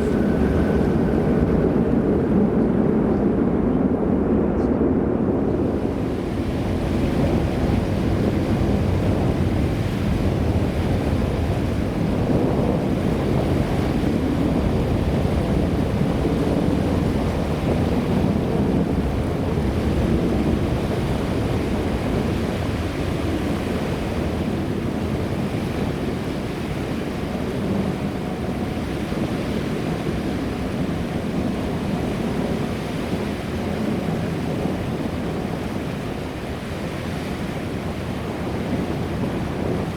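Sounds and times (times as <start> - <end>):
jet engines roaring: 0.0 - 39.9.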